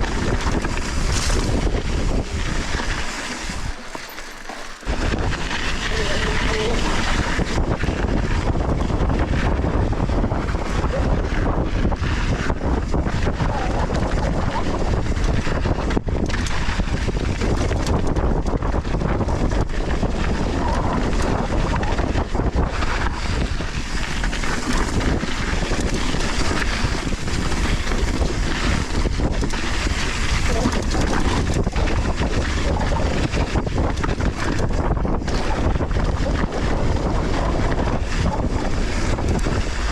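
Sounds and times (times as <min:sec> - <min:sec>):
bike tyres and frame clattering: 0:00.0 - 0:07.6, 0:22.3 - 0:35.9
wind buffeting microphone: 0:00.0 - 0:39.9.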